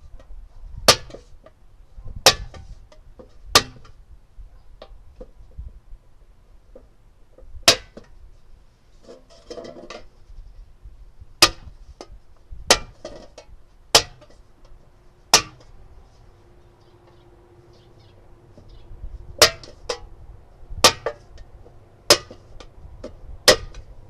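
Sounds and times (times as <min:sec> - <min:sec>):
tool striking metal tin: 0:14.0 - 0:14.3, 0:15.3 - 0:15.7, 0:19.4 - 0:20.1, 0:20.8 - 0:21.2, 0:22.1 - 0:22.4.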